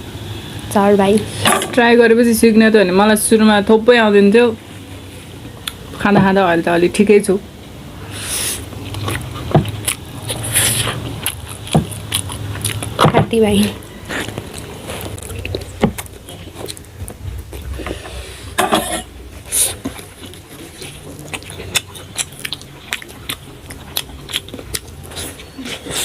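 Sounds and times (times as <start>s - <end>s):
person chewing noodles: 8.0s - 18.5s, 19.2s - 26.0s.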